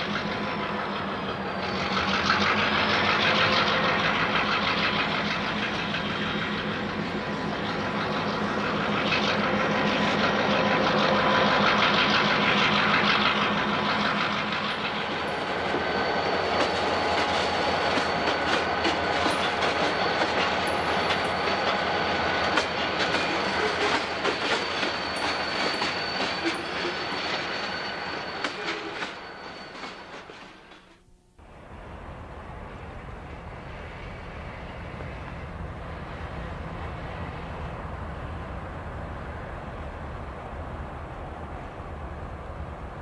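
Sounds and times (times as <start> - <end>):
diesel locomotive engines droning: 0.0 - 43.0
thin high whine: 0.1 - 43.0
wheels clicking over rail joints: 16.5 - 27.5.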